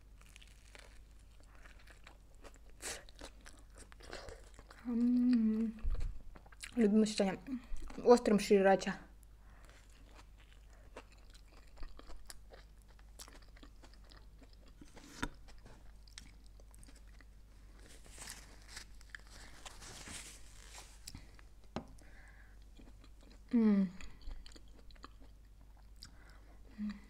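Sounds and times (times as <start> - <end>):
crunching of toasted bread: 0.0 - 4.8, 9.6 - 19.8.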